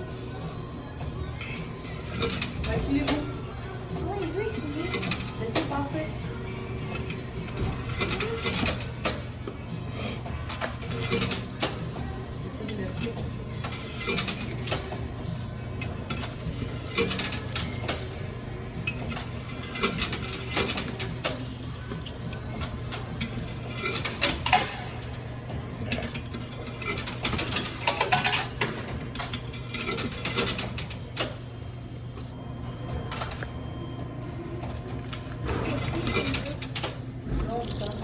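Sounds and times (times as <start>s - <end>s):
steady low hum: 0.0s - 38.0s
coins clinking in a machine: 1.4s - 3.4s, 4.0s - 9.6s, 10.2s - 33.6s, 34.2s - 38.0s.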